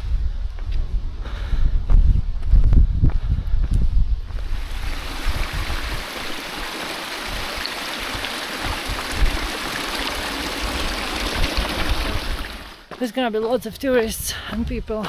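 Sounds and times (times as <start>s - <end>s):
wind rumble on microphone: 0.0s - 12.8s
flowing mountain stream: 4.3s - 12.9s.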